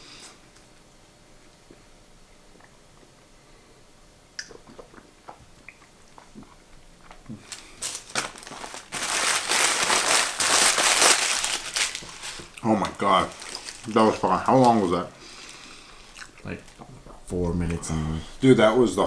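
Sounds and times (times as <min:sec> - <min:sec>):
faint chewing: 0:01.4 - 0:03.4, 0:04.4 - 0:08.1, 0:11.2 - 0:18.4
paper wrapper crumpling: 0:07.1 - 0:16.8.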